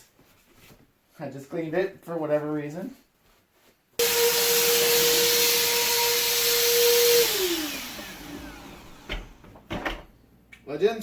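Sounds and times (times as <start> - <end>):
vacuum motor winding down: 4.0 - 9.5
vacuum cleaner running: 4.0 - 9.6.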